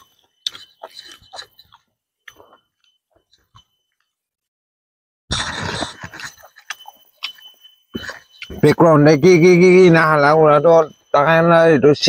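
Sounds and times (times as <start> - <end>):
person chewing: 0.0 - 3.6, 5.3 - 8.6.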